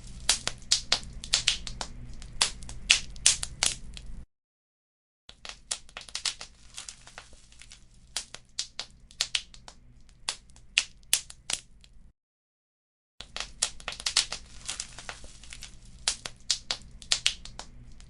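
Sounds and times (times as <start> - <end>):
wood fire crackling and popping: 0.0 - 4.2, 5.3 - 12.0, 13.2 - 18.0
low rumble of burning: 0.0 - 4.3, 13.4 - 18.0.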